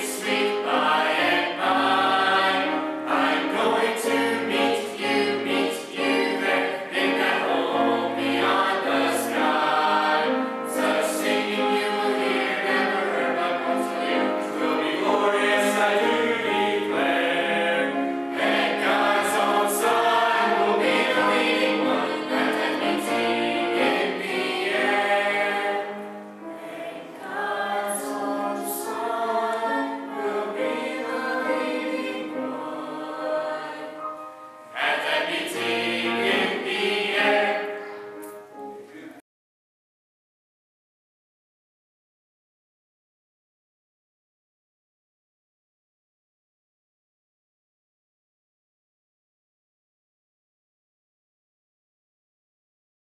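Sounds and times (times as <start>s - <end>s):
choir singing gospel song: 0.0s - 39.2s.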